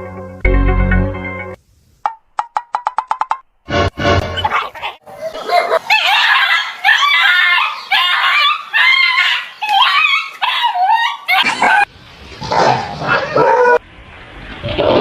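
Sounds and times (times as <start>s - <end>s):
dog yelping: 4.4s - 11.9s, 12.5s - 13.8s.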